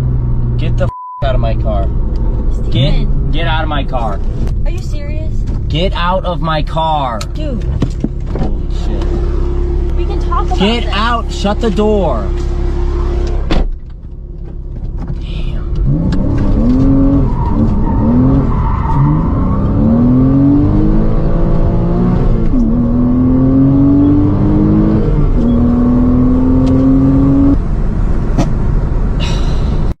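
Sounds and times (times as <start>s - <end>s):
car engine revving and accelerating: 5.6s - 13.6s, 14.9s - 29.1s.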